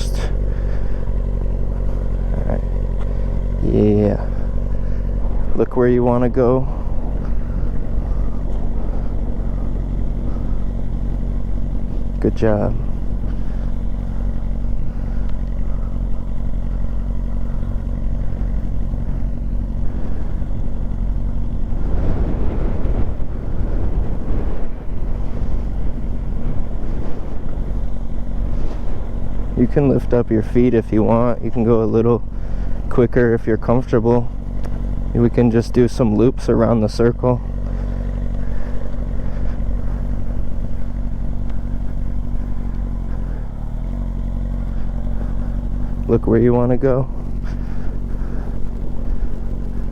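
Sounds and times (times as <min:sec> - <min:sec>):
motorcycle engine at low revs: 0:00.0 - 0:49.9
wind noise on microphone: 0:21.6 - 0:27.7.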